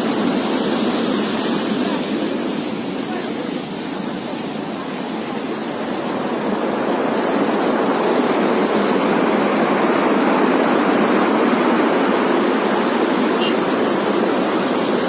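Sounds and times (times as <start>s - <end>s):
heavy rain rushing: 0.0s - 15.0s.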